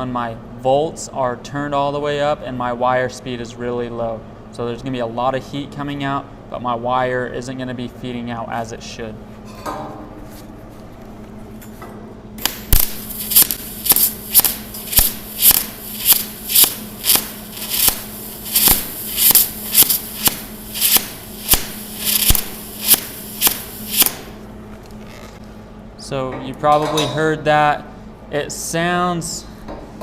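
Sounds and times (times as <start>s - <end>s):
welder arc popping: 12.4s - 24.5s.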